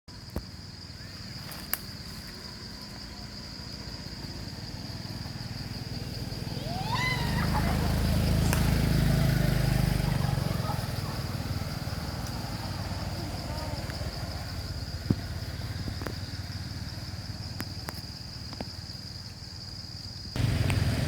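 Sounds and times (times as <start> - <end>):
high-pitched insect drone: 0.1 - 20.6
rising calls: 0.8 - 16.7
low motor rumble: 2.8 - 17.1, 20.4 - 21.0.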